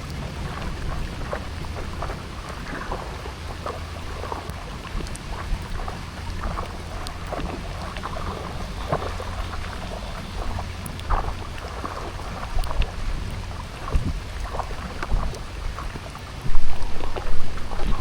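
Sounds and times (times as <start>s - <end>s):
rain falling: 0.0s - 18.0s
wind rumbling on microphone: 0.0s - 18.0s.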